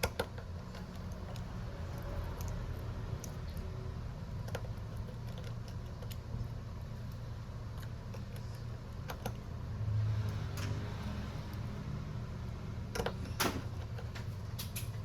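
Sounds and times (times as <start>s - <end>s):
small tools clicking and tapping: 0.0s - 3.7s, 12.9s - 15.0s
steady low hum: 0.0s - 15.0s.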